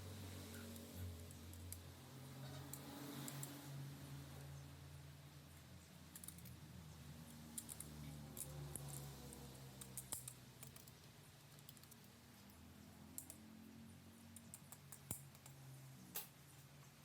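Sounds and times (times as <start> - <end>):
small metal parts clicking: 0.5 - 3.7, 6.0 - 6.6, 7.2 - 13.5, 14.3 - 16.4.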